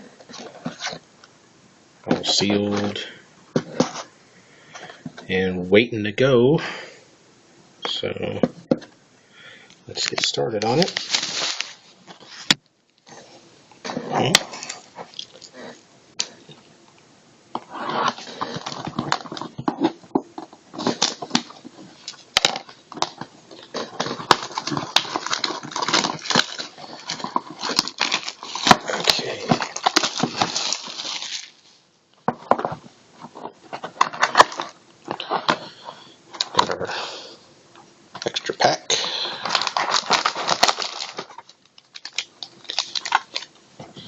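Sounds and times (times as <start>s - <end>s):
cardboard rustling: 3.6s - 4.1s, 10.0s - 15.8s, 17.6s - 36.8s, 39.4s - 44.0s
shrink wrap crinkling and tearing: 10.0s - 13.2s, 20.7s - 31.8s, 38.2s - 43.6s.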